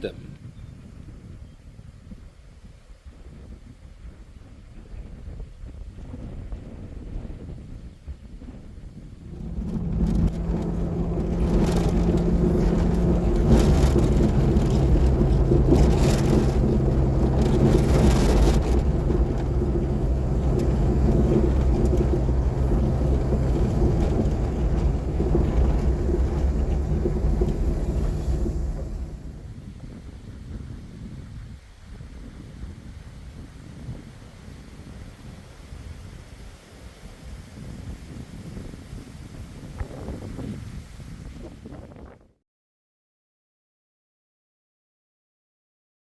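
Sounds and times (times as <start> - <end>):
wind gusts on microphone: 0.0 - 42.4
motor engine humming: 9.2 - 30.6.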